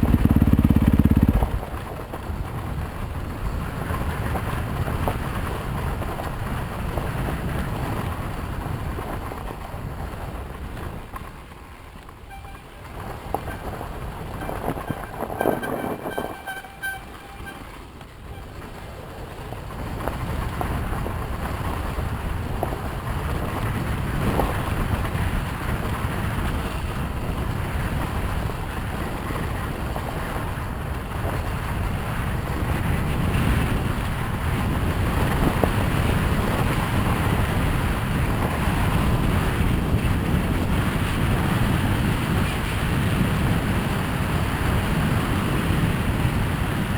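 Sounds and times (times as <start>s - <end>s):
dirt bike engine: 0.0s - 5.9s, 12.2s - 18.9s
wind buffeting microphone: 0.0s - 46.9s.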